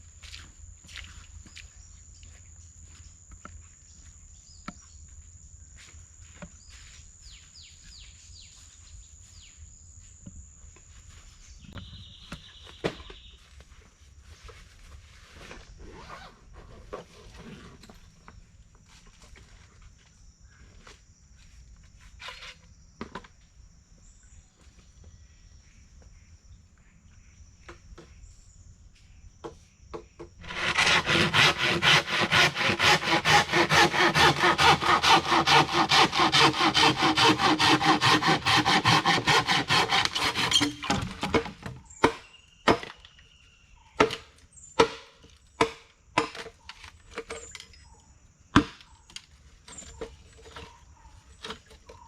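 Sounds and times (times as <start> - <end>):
hand saw cutting wood: 30.4 - 42.2.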